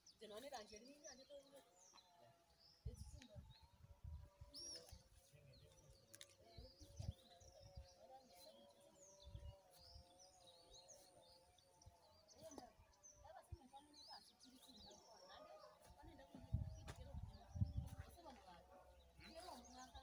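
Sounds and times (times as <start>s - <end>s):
faint birds chirping: 0.0s - 20.0s
soft low thumps: 15.8s - 18.3s.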